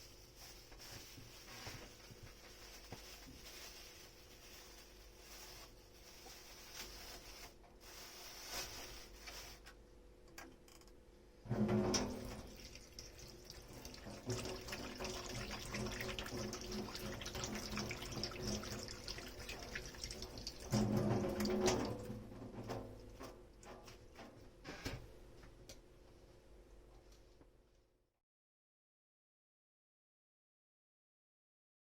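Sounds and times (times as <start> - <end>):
tap water running into sink: 11.5 - 23.8.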